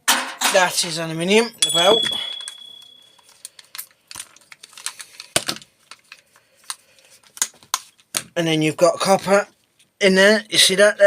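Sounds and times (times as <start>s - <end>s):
ringing metallic tone: 1.4s - 3.2s.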